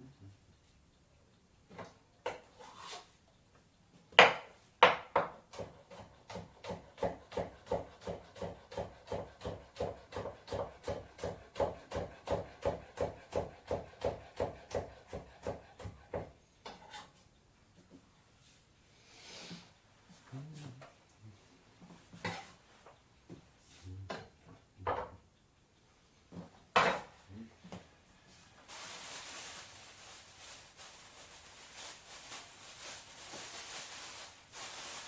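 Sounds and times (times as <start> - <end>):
knife chopping on a wooden board: 4.2 - 16.3.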